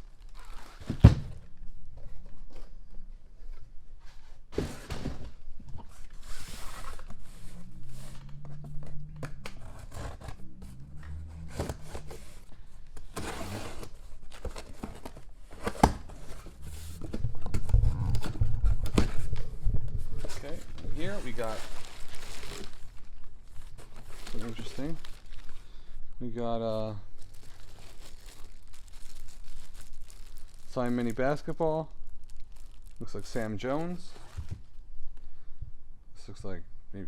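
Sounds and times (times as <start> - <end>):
packaging rustling: 5.9 - 25.8, 27.1 - 34.8.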